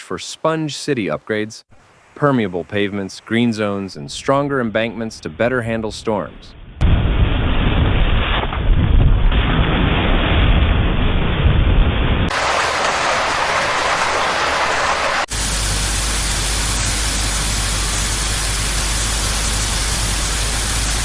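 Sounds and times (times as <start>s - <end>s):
steady rushing noise: 10.5s - 21.0s.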